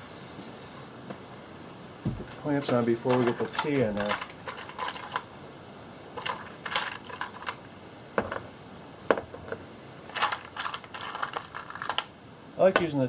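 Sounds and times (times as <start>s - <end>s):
metal hose clamps clinking: 2.2s - 5.3s, 6.2s - 7.6s.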